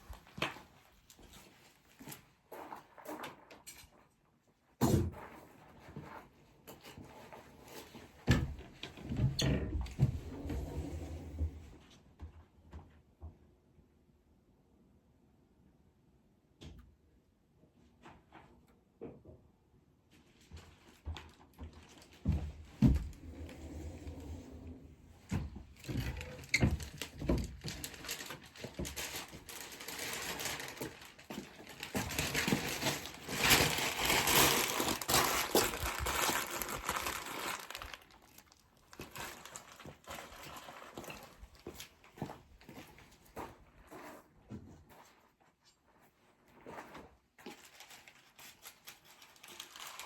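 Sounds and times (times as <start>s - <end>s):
dry twigs rustling and crinkling: 25.3s - 42.3s, 47.4s - 50.0s.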